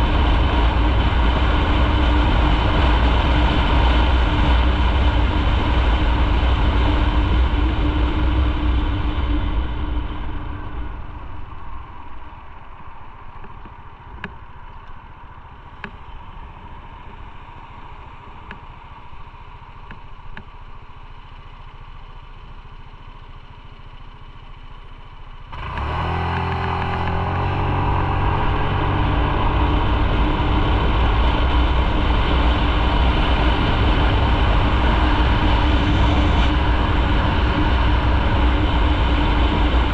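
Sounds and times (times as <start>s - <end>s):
wind noise: 0.0s - 14.8s, 25.6s - 39.9s
motorcycle engine idling and revving: 0.0s - 39.9s.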